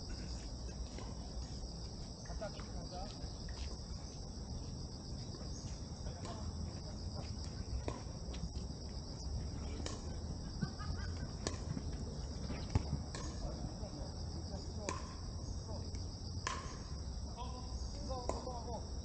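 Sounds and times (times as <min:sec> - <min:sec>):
insects chirring: 0:00.0 - 0:19.0
faint distant voices: 0:05.2 - 0:16.1.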